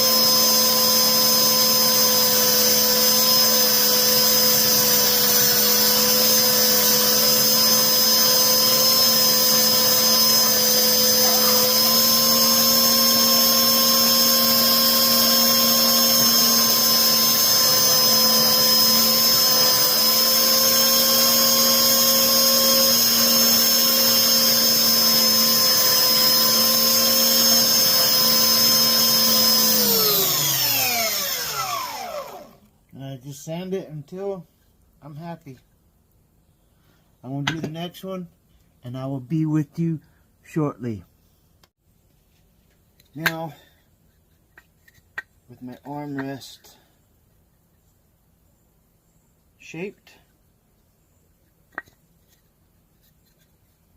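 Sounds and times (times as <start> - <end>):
belt sander sanding wood: 0.0 - 32.6.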